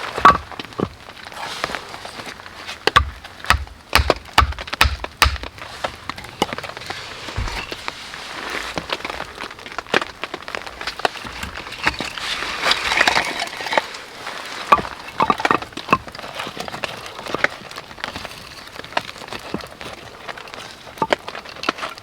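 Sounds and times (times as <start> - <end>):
wood cracking and snapping: 2.2 - 22.0.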